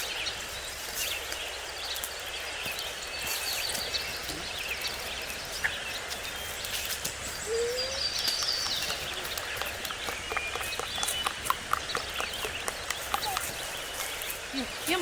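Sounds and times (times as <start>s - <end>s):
birds chirping and trilling: 0.0s - 15.0s
steady outdoor hiss: 0.0s - 15.0s
short low rising bird call: 7.4s - 8.3s.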